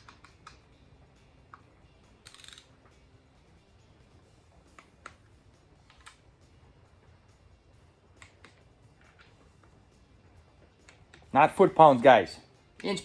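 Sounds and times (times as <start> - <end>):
torque wrench clicks: 2.2 - 2.7
wrench ratcheting: 2.2 - 2.7.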